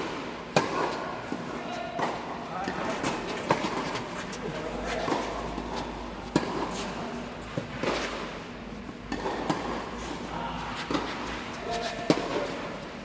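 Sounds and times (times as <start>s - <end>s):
tennis ball bouncing: 9.1s - 9.8s.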